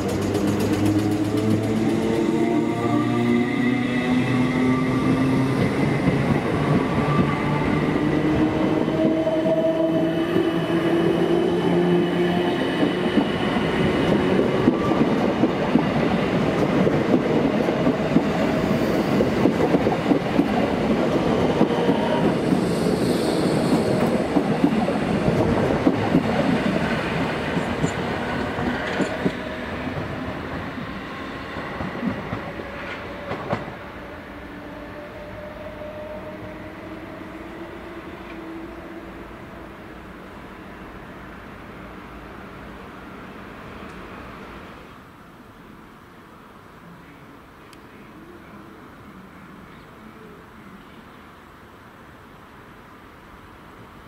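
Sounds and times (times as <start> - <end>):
train wheels clattering over rail joints: 0.0 - 2.2.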